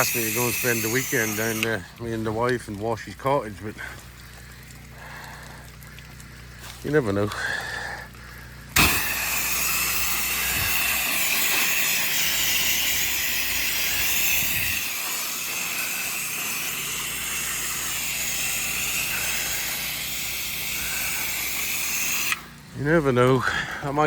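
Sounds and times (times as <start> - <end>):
sprayer hissing: 0.0 - 2.0, 8.5 - 24.0.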